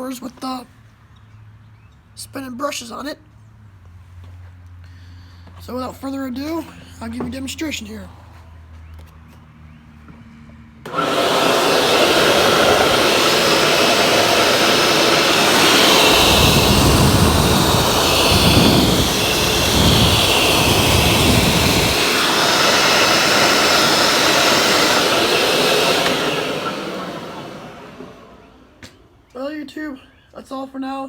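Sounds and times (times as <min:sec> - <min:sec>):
carpet cleaner motor running: 0:10.8 - 0:29.1.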